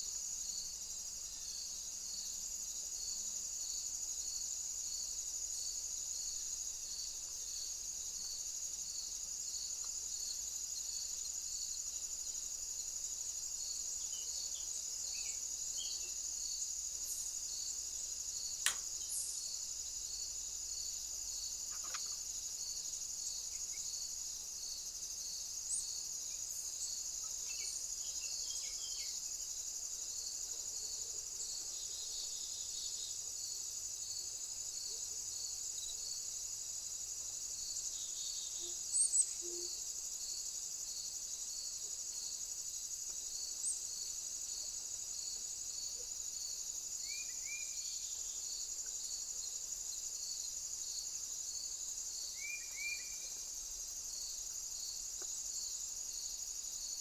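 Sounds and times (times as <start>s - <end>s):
sharp click: 18.6s - 18.9s.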